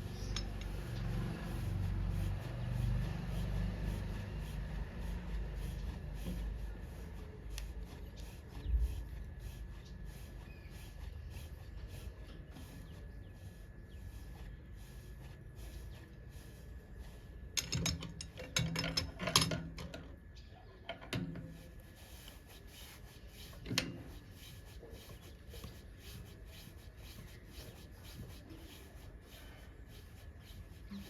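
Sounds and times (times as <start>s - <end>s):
metal tools clicking and rattling: 17.6s - 20.0s.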